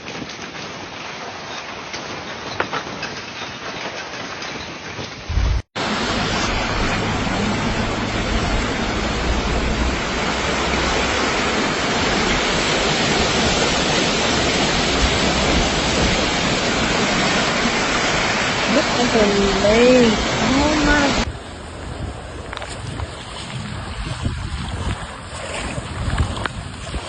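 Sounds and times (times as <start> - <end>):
heavy rain and running water: 0.0 - 27.0
low rumble: 5.3 - 13.7.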